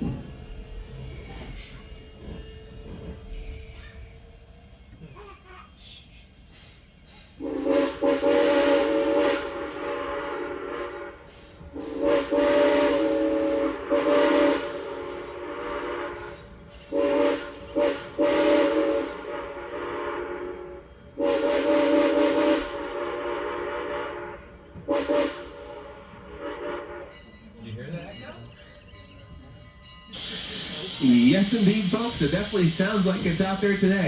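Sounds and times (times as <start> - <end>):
steam locomotive whistle blasts: 7.4 - 27.4, 30.1 - 34.0.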